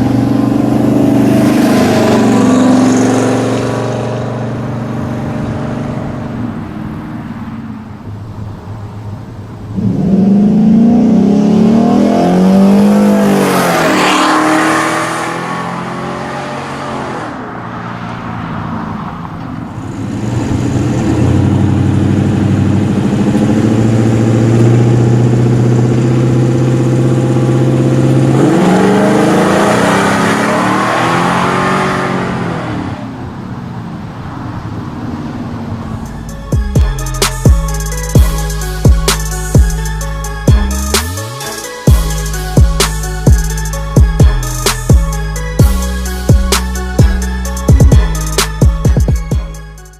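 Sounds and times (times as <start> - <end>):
pickup truck passing by: 0.0 - 49.0.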